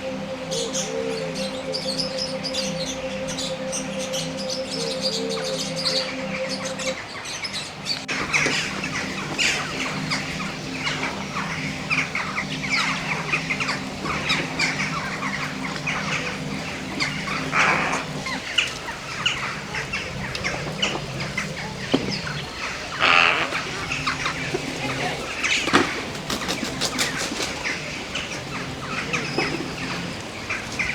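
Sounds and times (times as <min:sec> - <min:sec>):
birds chirping: 0:00.0 - 0:30.9
fowl clucking: 0:00.0 - 0:30.9.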